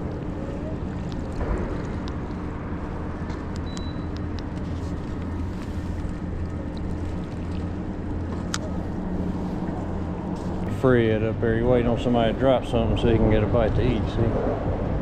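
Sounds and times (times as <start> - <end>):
small ticks and clicks: 0.0 - 8.7
boat motor running: 0.0 - 15.0.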